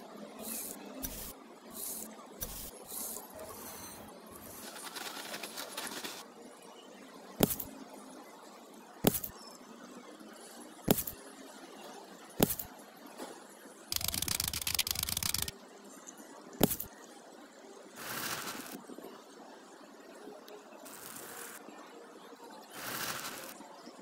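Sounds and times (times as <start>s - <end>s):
trowel scraping through sand: 0.4s - 6.2s, 7.4s - 7.7s, 9.1s - 9.3s, 10.9s - 11.2s, 22.8s - 23.6s.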